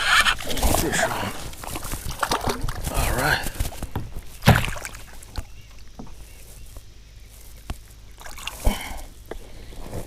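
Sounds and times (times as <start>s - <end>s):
water patter and splashing: 0.3s - 6.1s, 8.2s - 9.1s.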